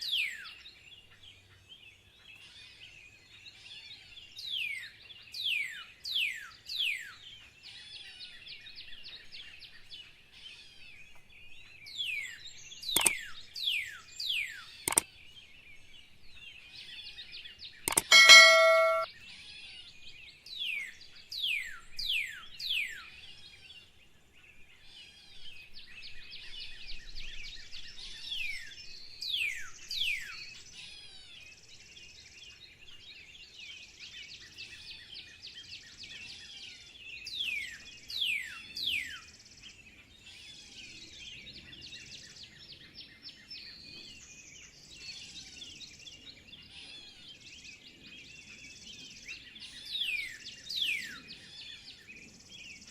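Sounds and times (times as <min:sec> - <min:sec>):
birds twittering: 0:11.0 - 0:19.1.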